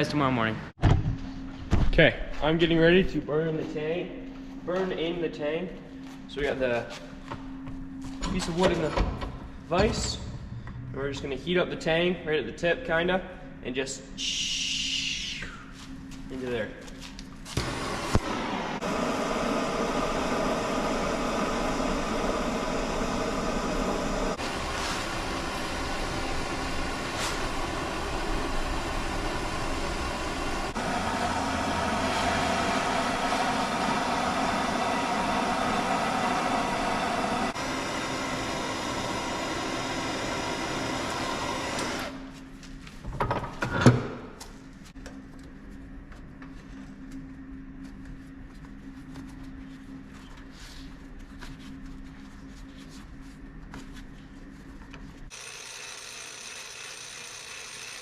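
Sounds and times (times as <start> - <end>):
gas burner rushing: 17.5 - 42.3.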